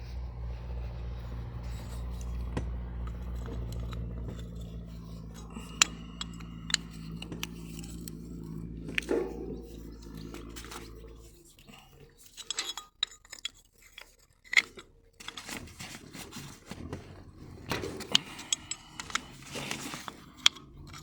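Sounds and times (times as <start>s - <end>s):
steady low hum: 0.0s - 13.5s
metal tools clicking and scraping: 0.7s - 21.0s.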